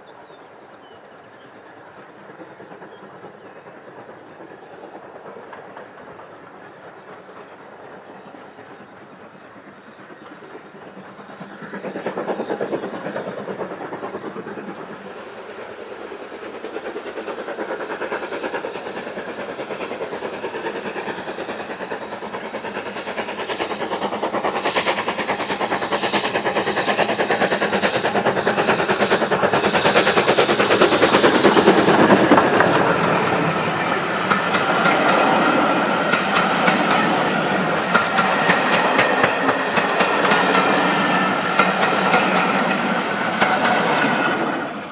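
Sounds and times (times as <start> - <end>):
train wheels squealing: 0.0 - 44.9
train wheels clicking over rail joints: 16.6 - 44.9.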